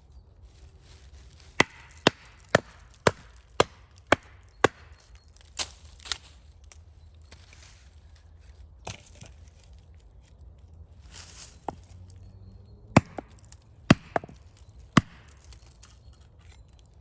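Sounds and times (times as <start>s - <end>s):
chopping on wood: 1.6s - 5.0s, 13.0s - 15.4s.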